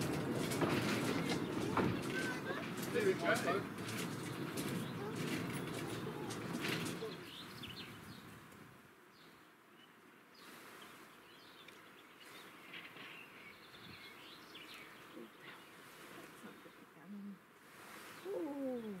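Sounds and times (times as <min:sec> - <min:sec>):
low rumbling noise: 0:00.0 - 0:08.0
small birds chirping: 0:00.0 - 0:19.0.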